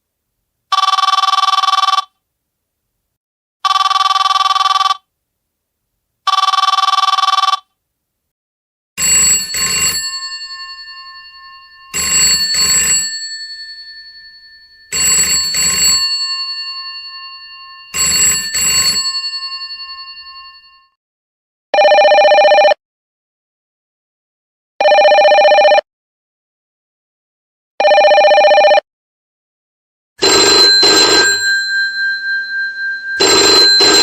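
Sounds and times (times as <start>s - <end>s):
electronic telephone ring: 0.7s - 2.1s, 3.6s - 5.1s, 6.3s - 7.7s, 9.0s - 21.0s, 21.8s - 22.8s, 24.8s - 25.8s, 27.8s - 28.8s, 30.2s - 34.0s
telephone bell ringing: 0.7s - 2.1s, 3.6s - 5.1s, 6.3s - 7.6s, 9.0s - 21.0s, 21.8s - 22.8s, 24.8s - 25.8s, 27.8s - 28.8s, 30.2s - 34.0s.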